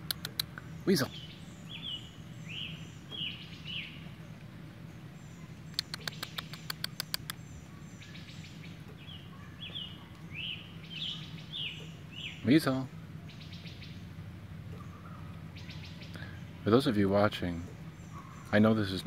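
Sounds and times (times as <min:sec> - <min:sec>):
sharp clicks: 0:00.0 - 0:00.6, 0:05.7 - 0:07.4
bird chirps: 0:00.0 - 0:19.0
steady low hum: 0:00.0 - 0:19.0.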